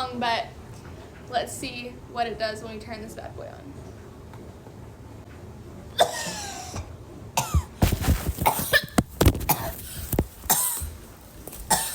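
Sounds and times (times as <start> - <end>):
woman coughing hard: 6.0 - 7.8, 8.4 - 9.8, 10.5 - 10.9, 11.7 - 11.9.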